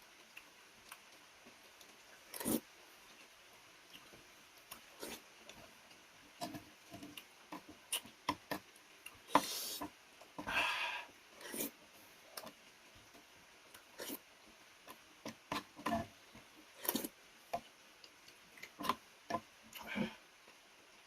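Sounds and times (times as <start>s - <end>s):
wet chewing: 1.8s - 3.3s, 3.9s - 9.9s, 13.7s - 14.2s, 14.8s - 19.9s.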